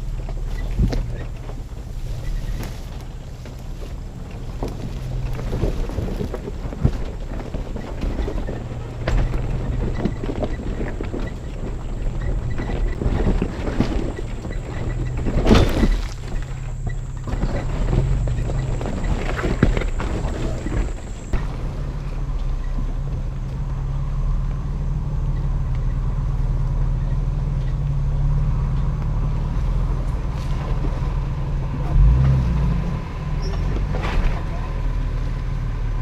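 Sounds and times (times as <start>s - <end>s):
knocks and rattles: 0.0s - 23.8s
truck engine drone: 0.0s - 36.0s.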